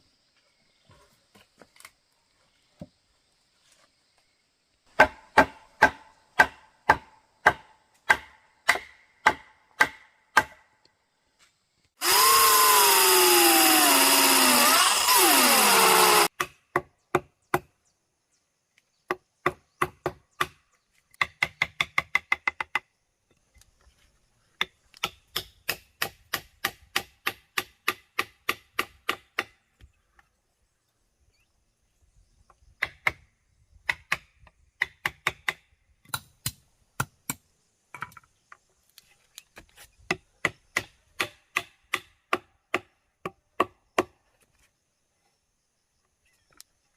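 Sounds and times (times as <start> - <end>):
sharp strikes on wood: 4.9 - 10.6
power tool running: 12.0 - 16.3.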